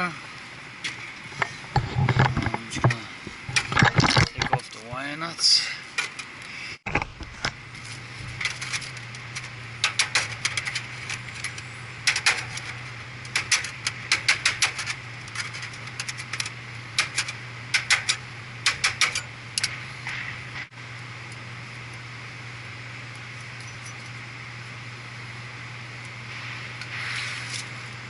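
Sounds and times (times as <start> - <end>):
steady low hum: 0.0 - 28.0
small parts clicking: 8.4 - 19.8.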